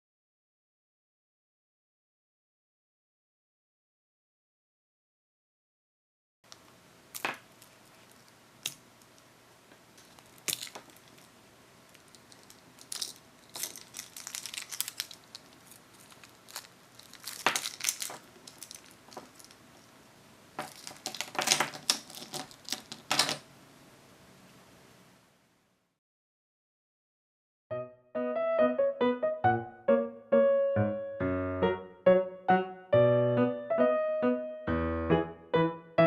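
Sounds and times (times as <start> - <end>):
faint steady hiss: 6.5 - 26.0
plastic wrap crinkling and tearing: 7.1 - 9.2, 9.9 - 19.9, 20.6 - 23.3.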